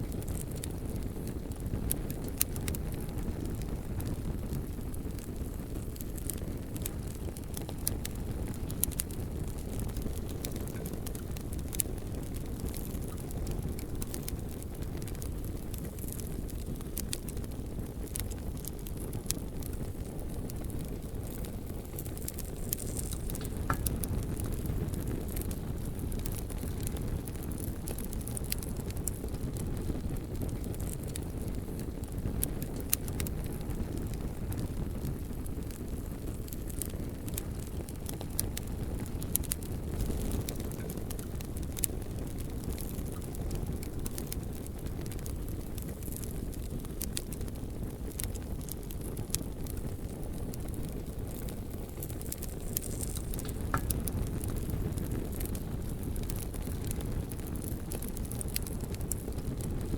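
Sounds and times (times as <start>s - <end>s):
bonfire flame rumble: 0.0s - 59.9s
burning logs crackling: 0.0s - 59.9s.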